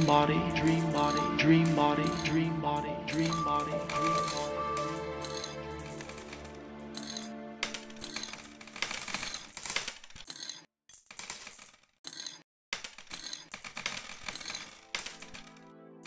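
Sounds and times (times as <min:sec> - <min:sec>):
coins clinking and clattering: 0:00.0 - 0:02.5, 0:03.1 - 0:15.7.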